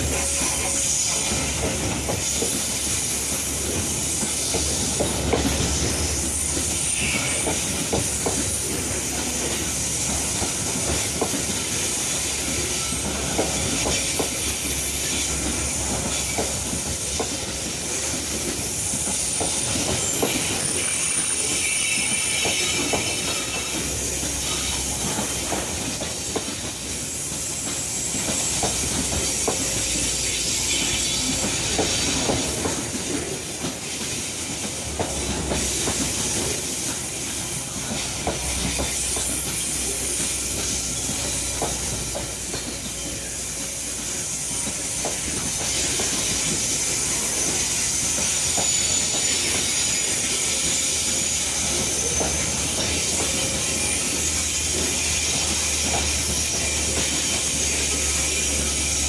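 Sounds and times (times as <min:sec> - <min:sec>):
hiss: 0:00.0 - 0:59.0
rail clicks and clacks: 0:00.0 - 0:59.0
train wheels rumbling on rail: 0:00.0 - 0:59.0
high thin wheel squeal: 0:05.6 - 0:10.0, 0:11.6 - 0:17.0, 0:18.9 - 0:26.3, 0:27.4 - 0:32.7, 0:42.8 - 0:59.0.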